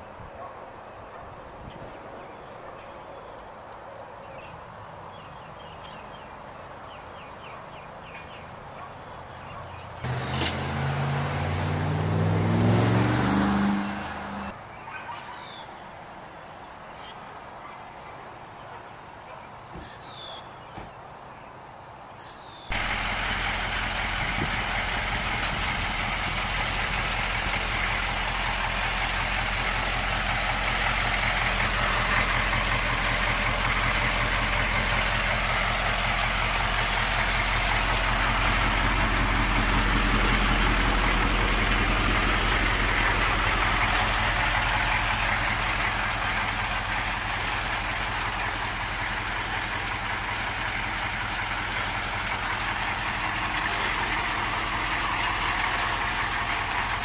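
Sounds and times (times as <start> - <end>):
diesel engine idling: 9.3 - 14.6, 22.7 - 57.0.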